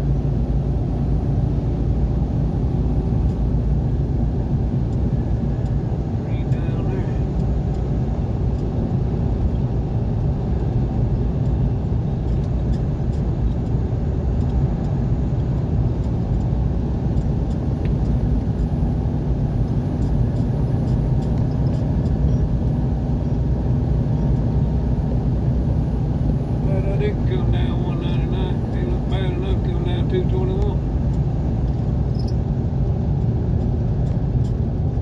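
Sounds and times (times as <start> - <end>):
car engine: 0.0 - 35.0
road rumble: 0.0 - 35.0.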